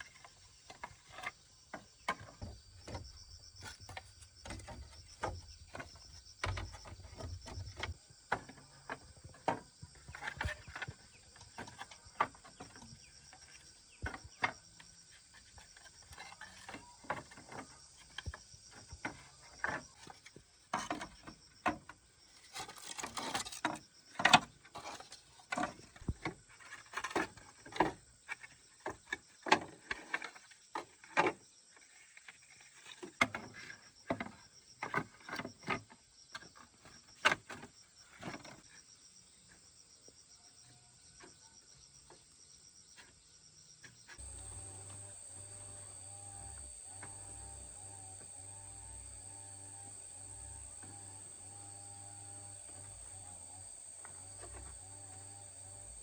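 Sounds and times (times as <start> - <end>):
faint high hum: 44.2 - 56.0.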